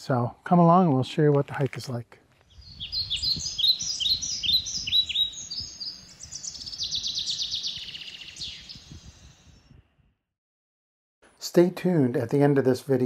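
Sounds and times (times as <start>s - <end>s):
birds singing: 2.4s - 10.2s.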